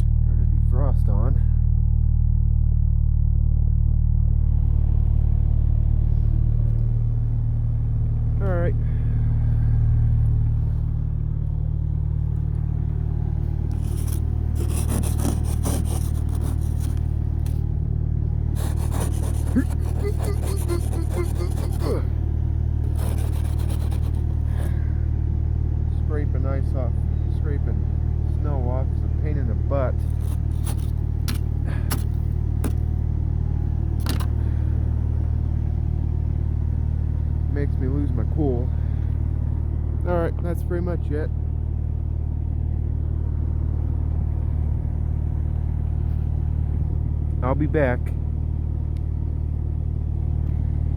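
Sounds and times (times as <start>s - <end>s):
car engine idling: 0.0s - 50.9s
ice scraper rasping on glass: 13.7s - 17.6s, 18.6s - 22.1s, 22.8s - 24.7s, 30.0s - 32.8s.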